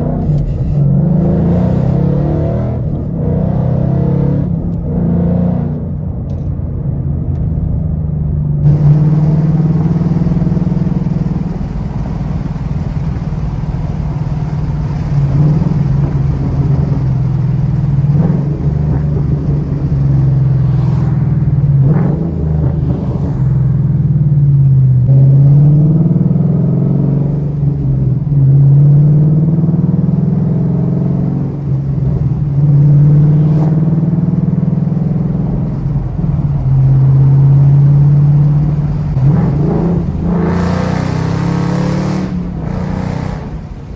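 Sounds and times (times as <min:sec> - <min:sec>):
car engine revving loudly: 0:00.0 - 0:06.0, 0:08.6 - 0:43.9.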